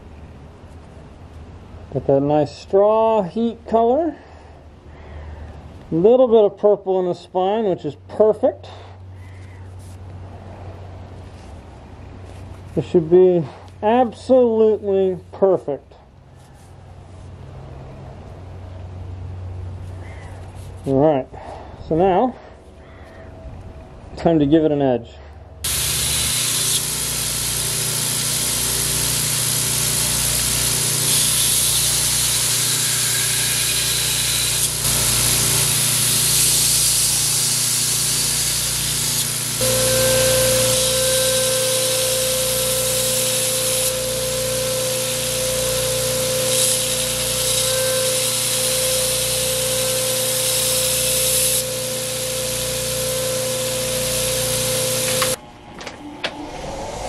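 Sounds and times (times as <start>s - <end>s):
steady hum: 25.3s - 57.0s
power grinder grinding blade: 25.7s - 55.4s.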